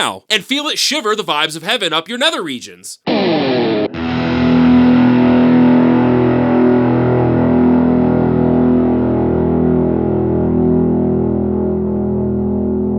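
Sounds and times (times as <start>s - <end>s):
electric guitar chord with reverb: 3.1s - 12.9s.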